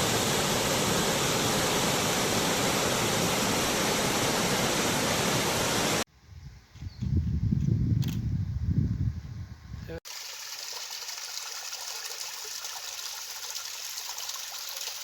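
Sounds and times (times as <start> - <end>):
waterfall rushing: 0.0 - 6.0.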